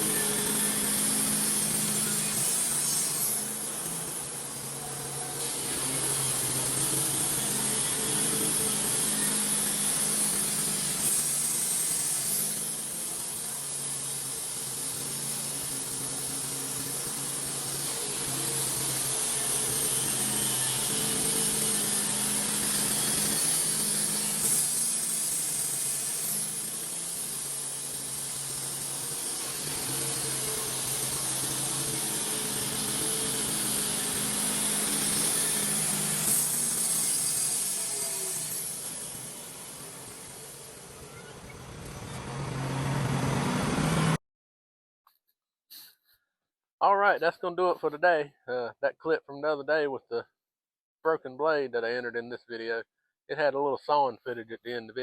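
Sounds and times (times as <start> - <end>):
saw blade hiss: 0.0 - 41.3
sawmill motor hum: 0.0 - 44.2.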